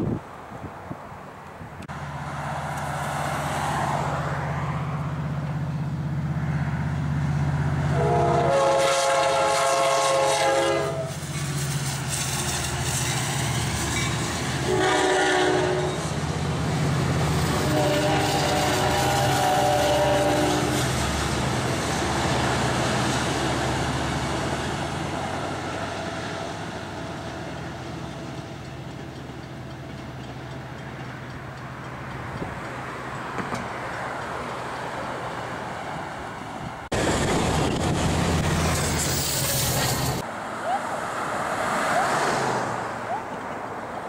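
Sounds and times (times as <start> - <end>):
train cars rumbling: 1.8 - 44.0
train horn: 7.9 - 11.2, 14.6 - 16.1, 17.5 - 20.8.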